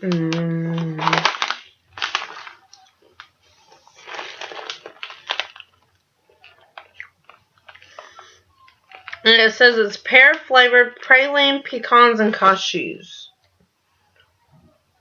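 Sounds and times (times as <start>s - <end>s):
person chewing crunchy snack: 1.0s - 9.3s.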